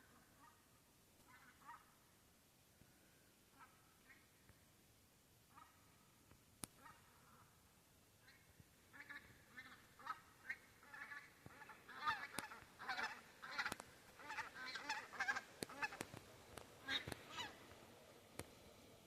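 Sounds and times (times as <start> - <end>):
faint sharp clicks: 6.3 - 6.8, 12.2 - 12.7, 13.5 - 14.3, 15.2 - 18.6
geese honking: 8.3 - 16.1, 16.8 - 17.8.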